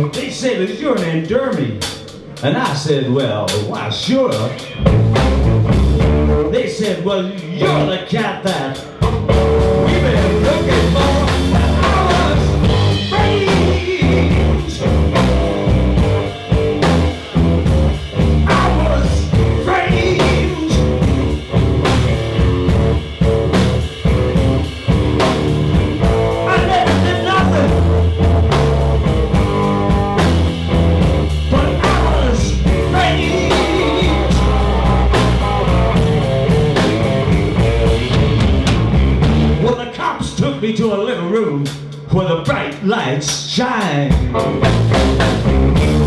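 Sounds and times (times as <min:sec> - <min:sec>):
electric blues band playing: 0:03.5 - 0:39.9, 0:44.0 - 0:46.0
electric guitar lines: 0:04.4 - 0:06.6, 0:08.8 - 0:39.7.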